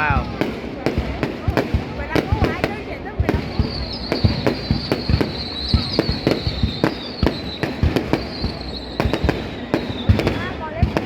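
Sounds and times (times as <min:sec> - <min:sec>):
fireworks bangs: 0:00.0 - 0:11.0
falling firework whistle: 0:03.3 - 0:11.0.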